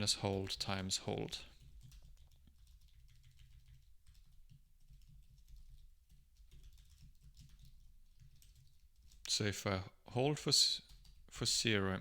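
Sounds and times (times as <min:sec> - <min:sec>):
computer keyboard typing: 0:01.5 - 0:09.3, 0:10.8 - 0:11.3.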